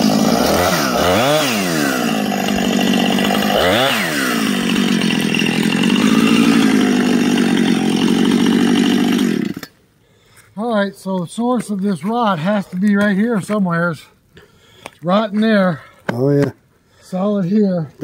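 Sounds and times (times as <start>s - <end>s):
chainsaw cutting log: 0.0s - 9.8s.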